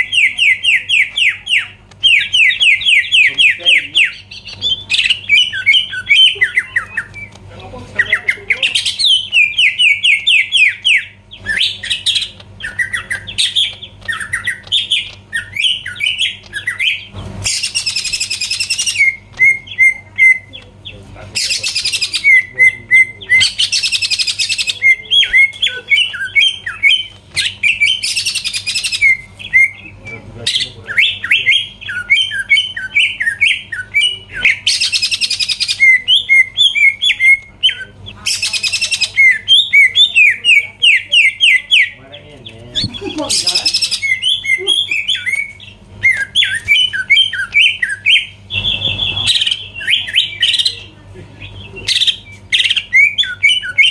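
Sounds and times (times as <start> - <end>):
bird singing whistled notes: 42.8 - 50.9, 51.5 - 53.9.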